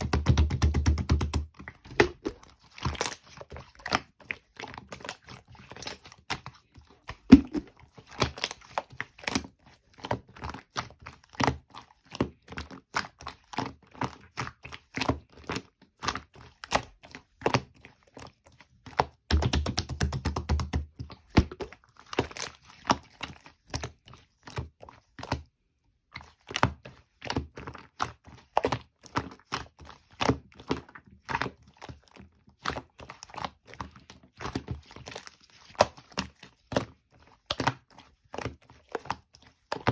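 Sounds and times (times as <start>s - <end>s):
slime clicking and popping: 7.3s - 7.7s.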